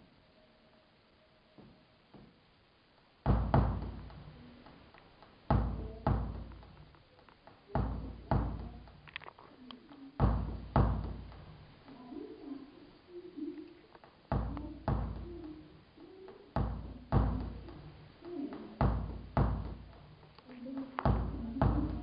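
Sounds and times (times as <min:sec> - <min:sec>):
heavy echoing thuds: 0:03.2 - 0:04.8, 0:05.4 - 0:07.0, 0:07.7 - 0:09.2, 0:10.2 - 0:11.7, 0:14.3 - 0:15.7, 0:16.6 - 0:18.0, 0:18.6 - 0:20.3, 0:20.9 - 0:22.0.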